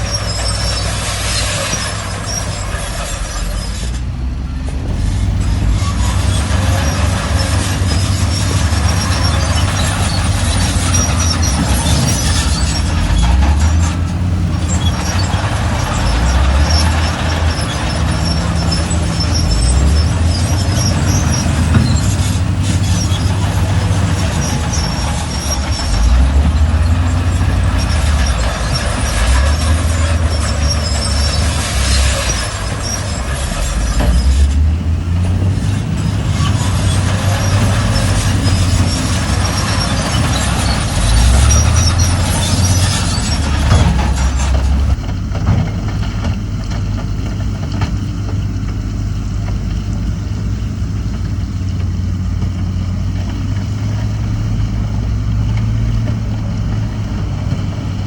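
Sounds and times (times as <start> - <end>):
heavy diesel engines revving: 0.0 - 58.0
hissing squeaky clatter: 0.0 - 58.0.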